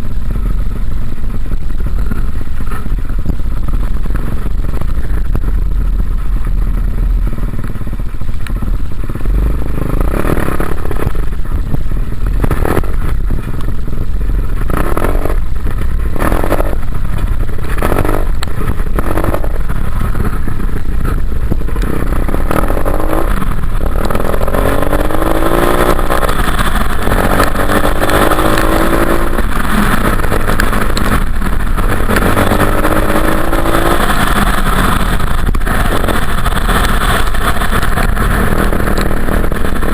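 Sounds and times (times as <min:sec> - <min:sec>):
heavy low rumble: 0:00.0 - 0:39.9
dirt bike engine revving: 0:09.0 - 0:39.9.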